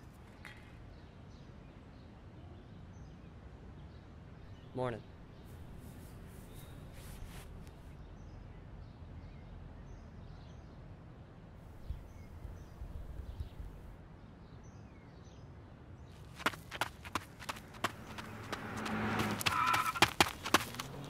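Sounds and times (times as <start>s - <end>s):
faint bird chirps: 3.8s - 7.3s
low outdoor rumble: 16.3s - 21.0s.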